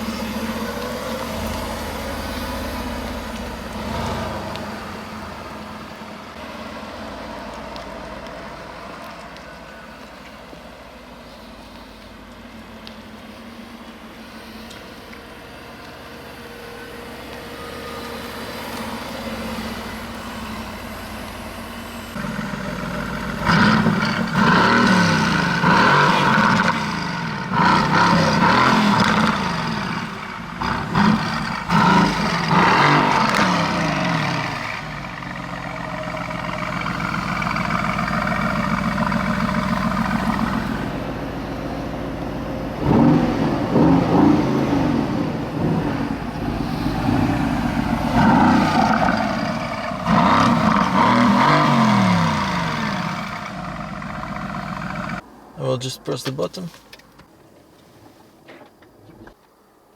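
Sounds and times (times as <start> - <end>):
car engine revving: 0.0 - 6.4, 19.4 - 41.3, 42.2 - 55.2.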